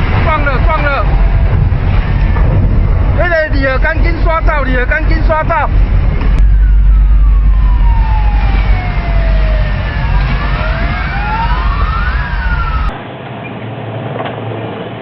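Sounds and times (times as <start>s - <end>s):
sirens wailing: 0.0s - 13.0s
heavy low rumble: 0.0s - 13.1s.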